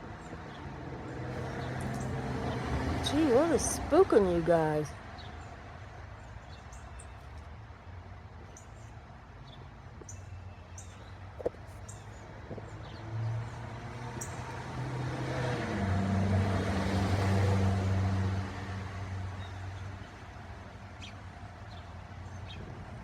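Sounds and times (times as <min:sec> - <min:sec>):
car passing by: 0:00.2 - 0:05.2, 0:12.5 - 0:21.1.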